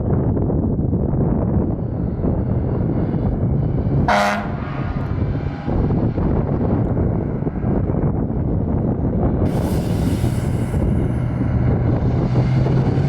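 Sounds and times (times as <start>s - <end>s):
fire engine rumbling: 0.0s - 13.0s
air horn blast: 4.1s - 4.8s.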